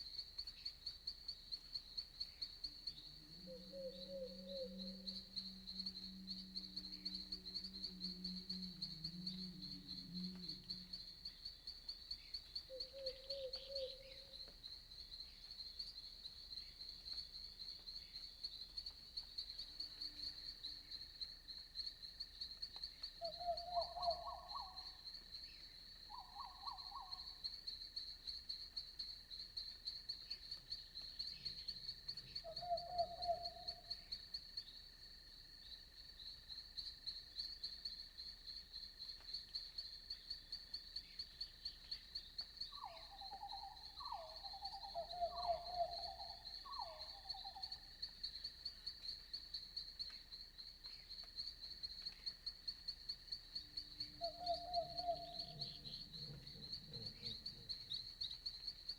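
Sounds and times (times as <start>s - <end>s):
crickets chirping: 0.0s - 58.9s
frogs trilled croaks: 3.4s - 11.5s, 41.4s - 50.4s, 51.2s - 58.9s.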